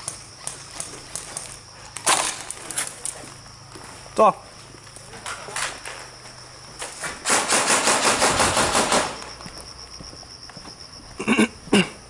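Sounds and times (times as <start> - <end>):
insects chirring: 0.0 - 12.0
airsoft gun full-auto burst: 7.2 - 9.2.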